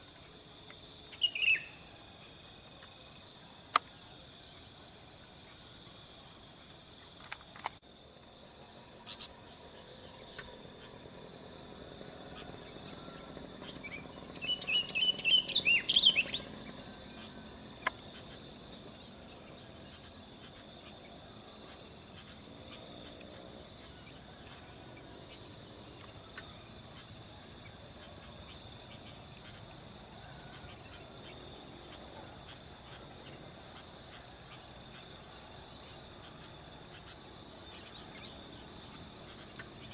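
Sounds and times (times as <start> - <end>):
insects chirring: 0.0 - 39.9
bird whistling song: 1.1 - 1.8, 13.8 - 16.9.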